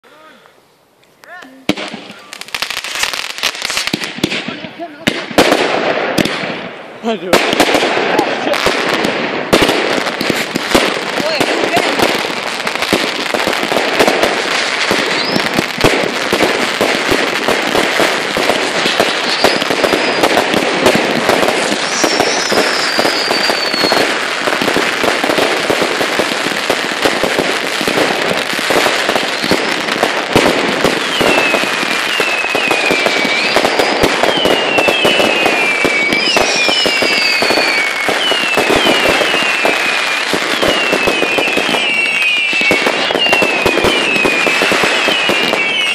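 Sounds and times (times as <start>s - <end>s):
fireworks bangs and crackling: 1.2s - 45.9s
firework whistles gliding down: 14.5s - 16.4s, 17.7s - 24.8s, 30.4s - 45.9s.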